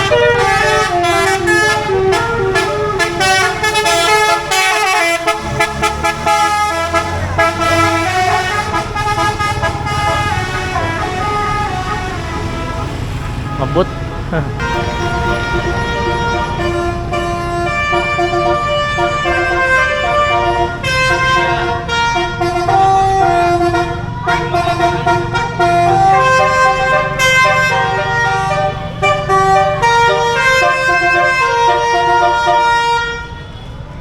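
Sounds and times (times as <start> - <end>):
musical bus air horn melody: 0.0 - 33.8.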